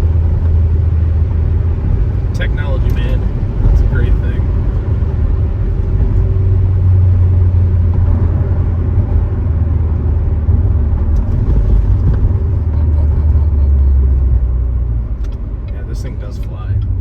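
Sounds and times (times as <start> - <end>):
engine and exhaust drone: 0.0 - 17.0
road noise: 0.0 - 17.0.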